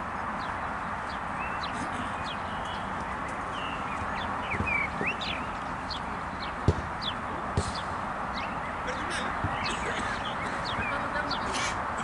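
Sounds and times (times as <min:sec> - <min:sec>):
outdoor background hiss: 0:00.0 - 0:12.0
small birds chirping: 0:00.0 - 0:12.0
dull thumps: 0:06.6 - 0:07.9.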